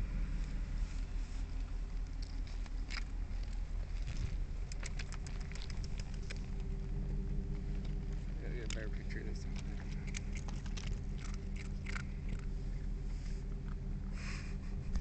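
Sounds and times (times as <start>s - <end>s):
vehicle engine idling: 0.0s - 15.0s
quick light clicks and crackles: 2.0s - 12.6s.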